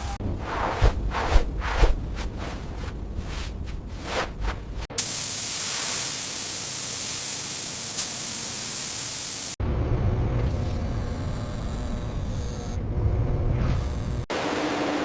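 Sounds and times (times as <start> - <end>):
soft whooshes: 0.3 - 4.9
loud steady hiss: 5.0 - 9.6.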